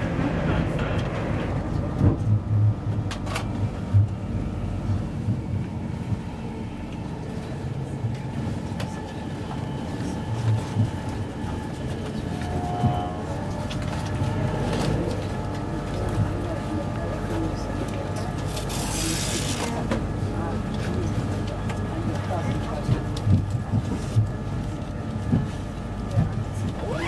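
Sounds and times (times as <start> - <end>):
heavy thumps of passing train: 0.0 - 4.2, 10.4 - 16.5, 22.8 - 24.4
train rumble inside coach: 0.0 - 27.0.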